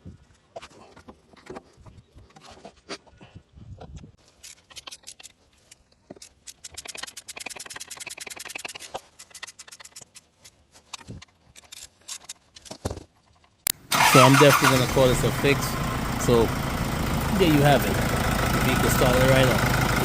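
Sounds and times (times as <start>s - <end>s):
clicks and scrapes: 3.8s - 13.8s
fast run of small clicks: 4.8s - 12.7s.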